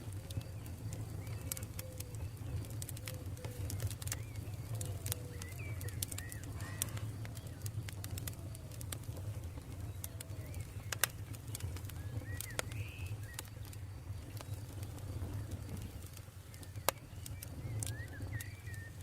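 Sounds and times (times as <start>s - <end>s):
campfire crackling and popping: 0.0s - 19.0s
bird calling: 0.3s - 7.6s.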